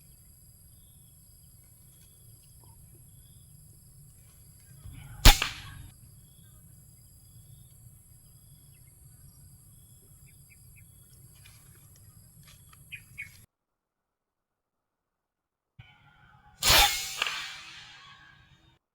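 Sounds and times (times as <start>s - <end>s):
high insect drone: 0.0s - 13.4s.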